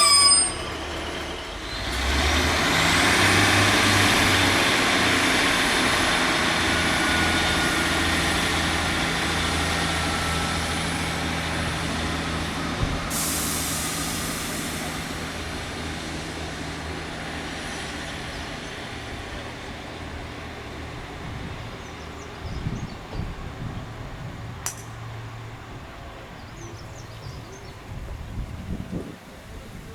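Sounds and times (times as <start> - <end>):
diesel train engine hum: 0.0 - 29.9
air release hiss: 13.1 - 15.0.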